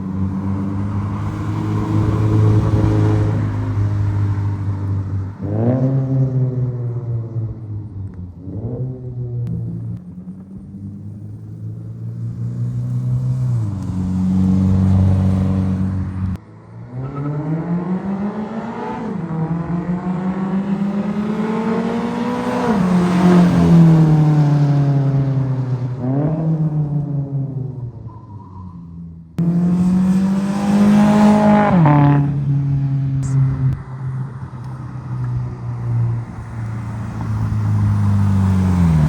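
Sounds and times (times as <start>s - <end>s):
car engine revving: 8.3s - 28.7s, 29.4s - 39.0s
car accelerating past: 10.6s - 27.9s, 29.4s - 39.0s.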